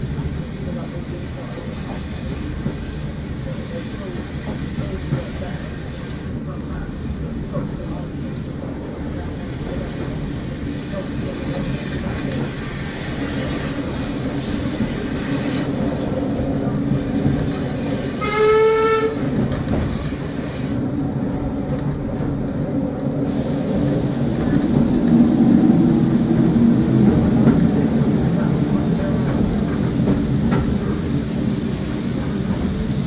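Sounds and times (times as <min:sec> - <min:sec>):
train coach rumble from inside: 0:00.0 - 0:33.0
short train horn note: 0:18.2 - 0:19.2.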